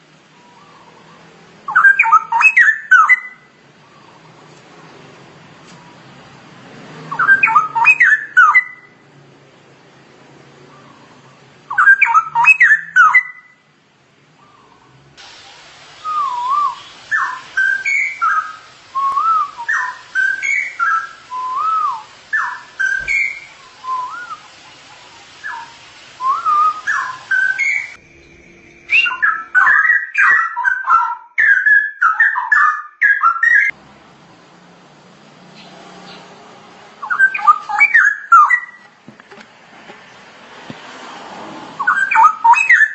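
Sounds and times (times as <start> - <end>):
bird whistling song: 0.3 - 4.4, 7.1 - 9.0, 10.7 - 13.7, 16.0 - 33.8, 37.0 - 39.0, 41.8 - 42.9.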